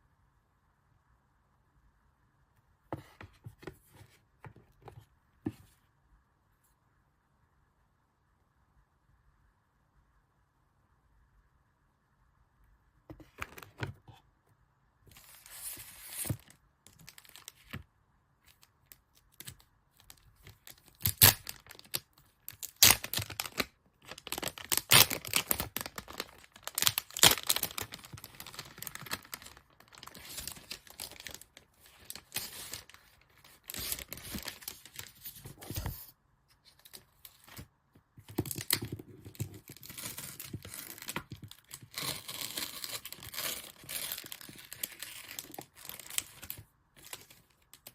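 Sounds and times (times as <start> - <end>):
packaging rustling and tearing: 19.4 - 36.0, 38.3 - 47.8.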